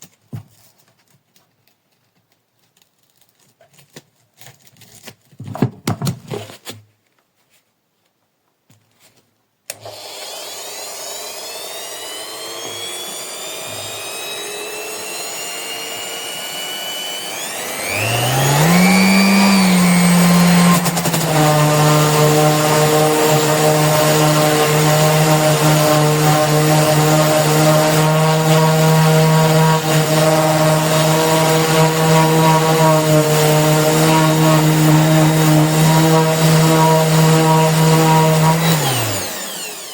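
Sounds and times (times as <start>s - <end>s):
orbital sander whirring: 9.7s - 39.9s.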